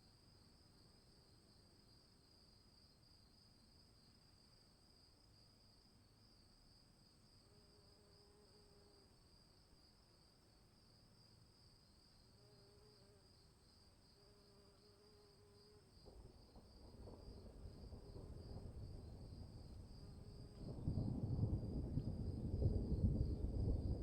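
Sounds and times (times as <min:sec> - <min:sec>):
insects chirring: 0:07.3 - 0:24.0.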